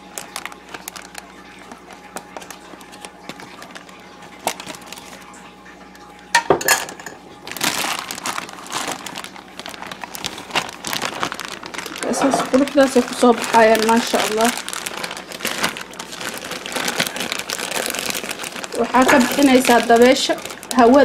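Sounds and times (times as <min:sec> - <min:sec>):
rustling handling noise: 0:00.0 - 0:05.4, 0:06.6 - 0:21.0
dishes and utensils clinking: 0:06.3 - 0:07.2, 0:12.1 - 0:12.6.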